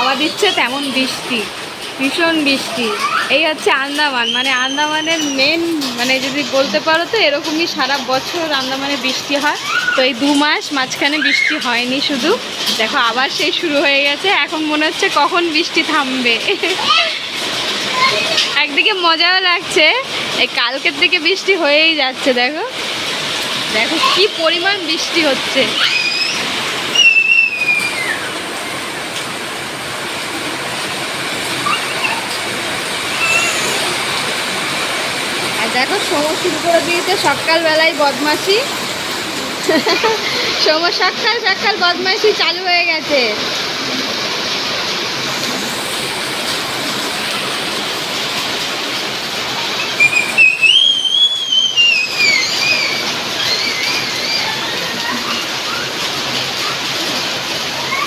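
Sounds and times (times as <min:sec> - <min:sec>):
heavy rain pouring: 0:00.0 - 0:58.0
high whistled tone: 0:25.8 - 0:28.4, 0:49.8 - 0:54.5.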